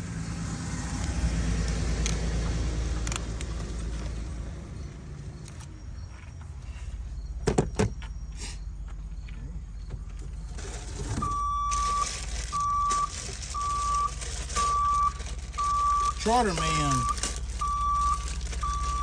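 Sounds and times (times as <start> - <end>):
vehicle backup alarm beeping: 4.3 - 19.0.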